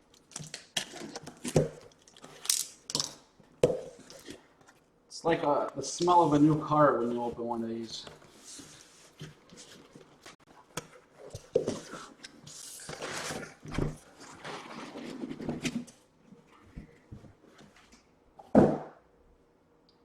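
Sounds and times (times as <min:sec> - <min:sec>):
cardboard boxes rustling and scraping: 0:05.9 - 0:17.9
boxes knocking when set down: 0:18.4 - 0:19.0.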